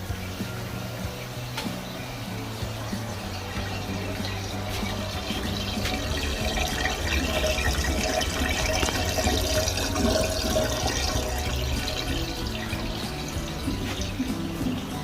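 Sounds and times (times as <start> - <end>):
tap water splashing into sink: 3.5 - 15.0.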